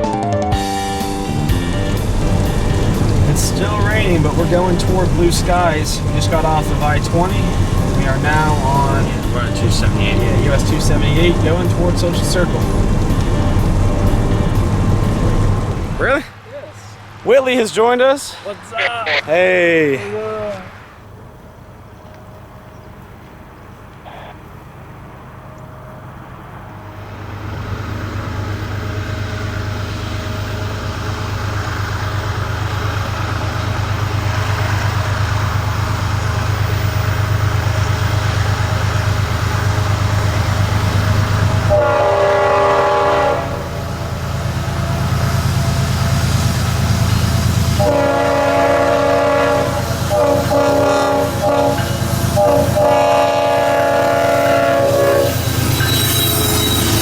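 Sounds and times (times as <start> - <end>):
diesel locomotive engine drone: 0.5 - 57.0
locomotive air horn blasts: 38.4 - 44.4, 47.0 - 57.0.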